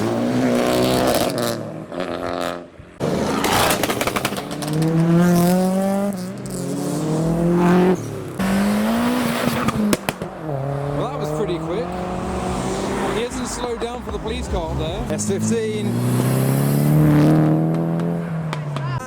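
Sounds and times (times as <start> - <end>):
car engine accelerating hard: 0.0 - 19.0
exhaust pops crackling: 3.0 - 19.0.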